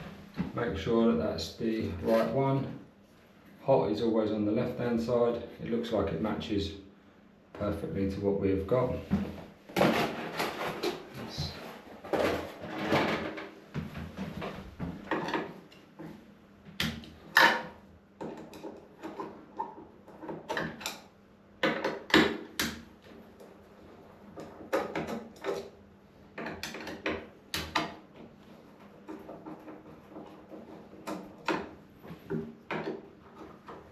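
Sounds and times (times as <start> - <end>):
objects knocking and clattering: 9.1 - 16.2, 16.8 - 22.8, 24.3 - 33.9.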